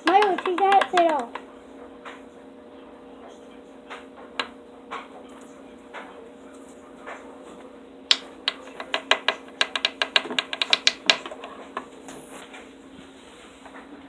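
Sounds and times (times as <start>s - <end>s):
sharp clicks and taps: 0.0s - 1.4s, 8.1s - 11.9s
faint steady hum: 0.0s - 14.0s.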